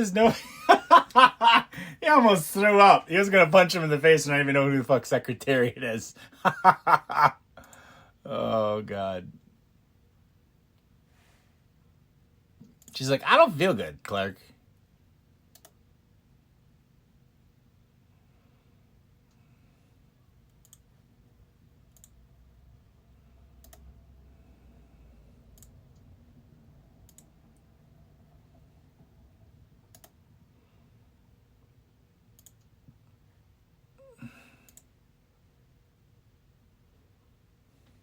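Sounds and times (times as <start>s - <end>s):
voice sigh: 1.4s - 2.0s
faint sharp clicks: 15.5s - 15.8s, 20.4s - 20.9s, 21.9s - 22.2s, 23.6s - 23.9s, 27.1s - 27.3s, 29.9s - 30.2s, 32.4s - 32.8s, 34.7s - 34.9s.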